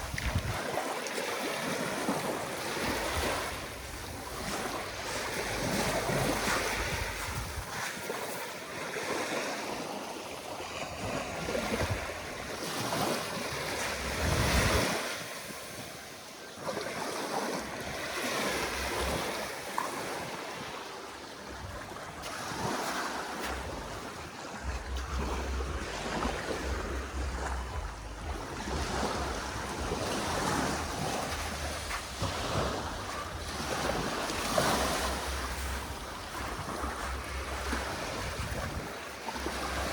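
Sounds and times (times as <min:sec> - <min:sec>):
wind buffeting microphone: 0:00.0 - 0:00.9, 0:01.7 - 0:08.1, 0:10.9 - 0:13.1, 0:21.4 - 0:39.9
waves washing onto beach: 0:00.0 - 0:39.9.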